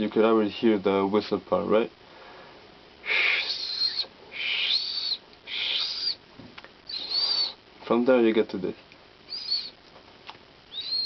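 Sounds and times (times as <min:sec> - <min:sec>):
person whistling bird call: 0:03.1 - 0:06.2, 0:06.9 - 0:07.6, 0:09.3 - 0:09.7, 0:10.7 - 0:11.0.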